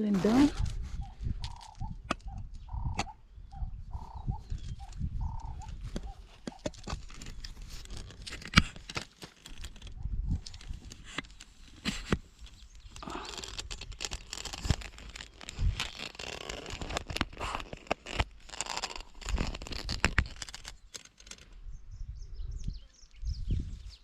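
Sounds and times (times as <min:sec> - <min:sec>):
rustling: 0:05.6 - 0:21.6.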